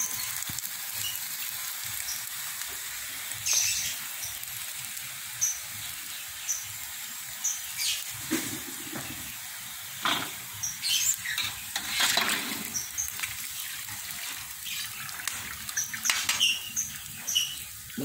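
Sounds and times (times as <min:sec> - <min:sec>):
crackers sizzling in oil: 0:00.0 - 0:18.0
metal spatula scraping a wok: 0:11.1 - 0:12.9.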